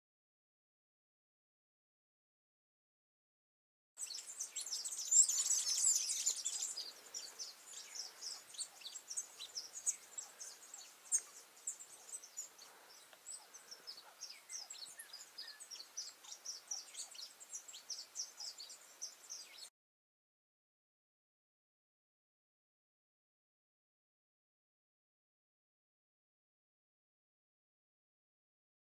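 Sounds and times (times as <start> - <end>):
small birds chirping: 4.0 - 19.7.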